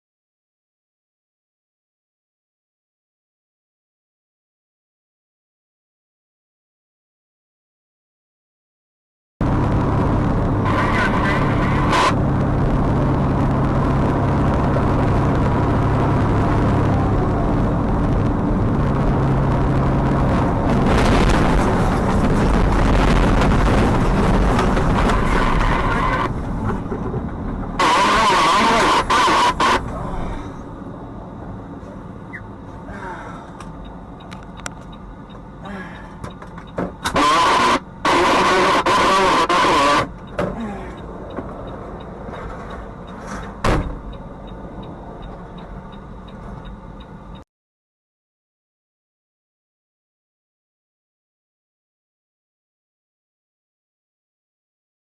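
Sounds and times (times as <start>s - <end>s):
car engine: 9.4s - 47.4s
faint regular ticking: 33.6s - 36.8s
louder thump: 43.6s - 44.0s.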